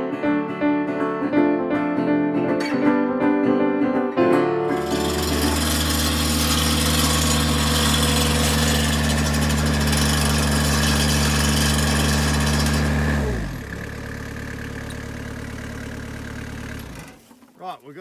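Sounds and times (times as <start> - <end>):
loader engine revving: 4.7 - 17.2.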